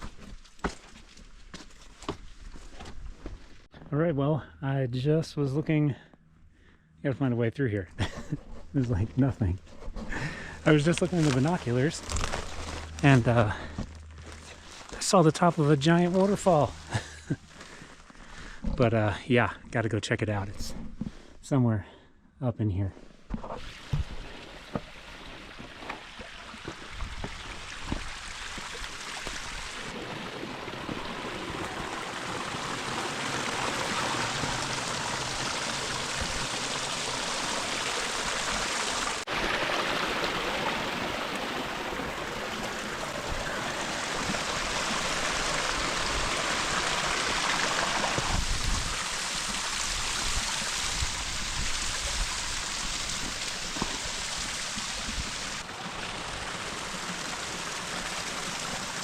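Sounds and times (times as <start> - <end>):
stream rushing over cascades: 23.7 - 59.0.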